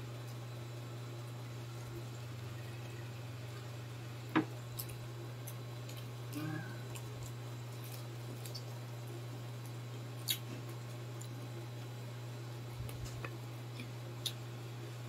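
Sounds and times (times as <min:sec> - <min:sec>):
steady low hum: 0:00.0 - 0:15.0
people chewing crispy food: 0:04.6 - 0:15.0.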